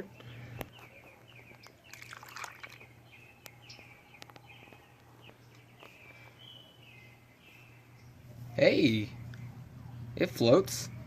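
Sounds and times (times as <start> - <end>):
low steady hum: 0.0 - 11.0
liquid splash: 2.0 - 2.8.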